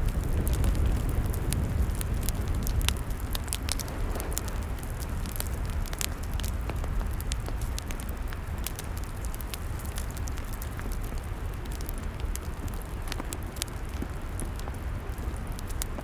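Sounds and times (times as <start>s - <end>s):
low rumble: 0.0s - 7.6s
log fire crackling: 0.0s - 16.0s.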